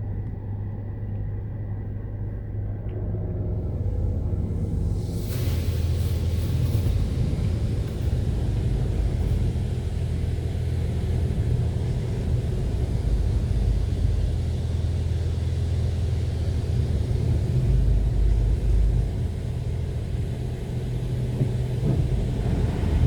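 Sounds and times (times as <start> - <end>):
car wash machinery rumble: 0.5 - 23.0
spray hiss: 5.0 - 9.4.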